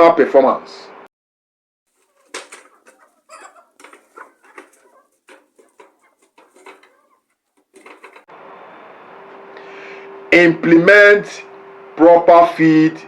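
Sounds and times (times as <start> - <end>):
poultry clucking: 1.9 - 8.3
faint hum: 7.8 - 13.0.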